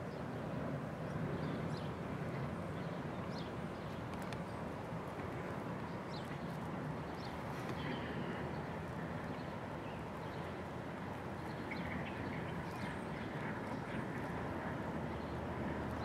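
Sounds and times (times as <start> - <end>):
low rush of background noise: 0.0 - 16.0.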